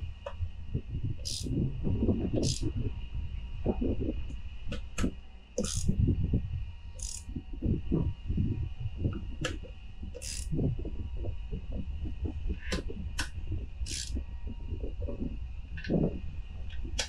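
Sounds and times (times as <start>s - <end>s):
steady low hum: 0.0s - 17.0s
metallic clicks of hand tools: 2.4s - 2.6s, 5.6s - 5.9s, 7.0s - 7.2s, 10.2s - 10.5s, 13.9s - 14.2s.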